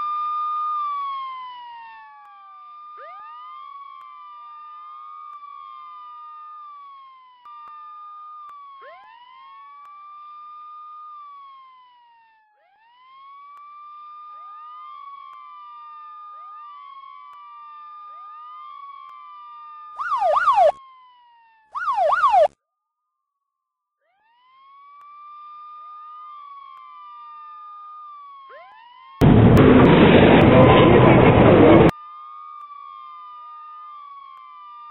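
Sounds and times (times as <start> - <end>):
police siren wailing: 0.0 - 22.5, 24.1 - 34.9
siren yelping sweeps: 2.9 - 3.4, 8.7 - 9.6, 20.0 - 20.8, 21.8 - 22.5, 28.4 - 29.1
loud rough noise: 29.2 - 31.9.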